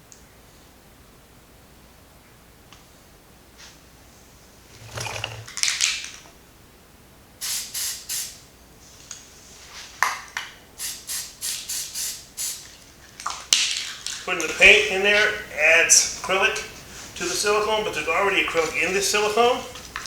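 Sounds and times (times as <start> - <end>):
tool scraping container sides: 4.7 - 5.6.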